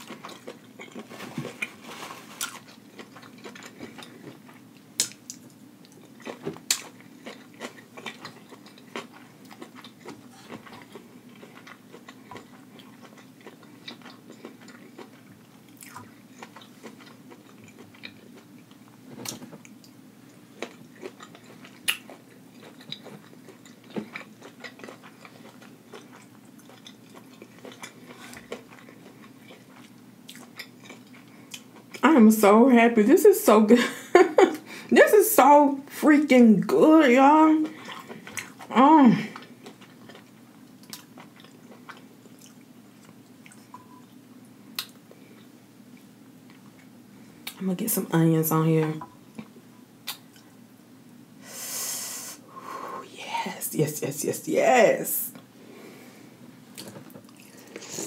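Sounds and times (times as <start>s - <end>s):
steady low hum: 0.0s - 58.0s
wet chewing and mouth smacks: 2.4s - 32.0s, 37.7s - 38.7s, 39.3s - 47.6s, 49.0s - 50.5s, 56.7s - 58.0s.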